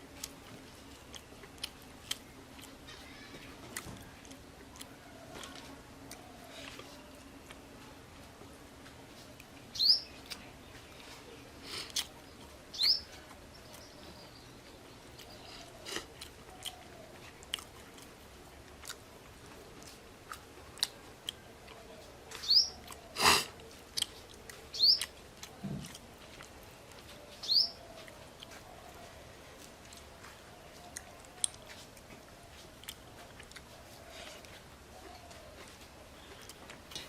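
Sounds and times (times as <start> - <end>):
chewing and crunching food: 0.0 - 37.0
bird chirping: 9.7 - 11.5, 12.2 - 15.8, 22.4 - 22.9, 24.7 - 25.1, 27.1 - 29.1.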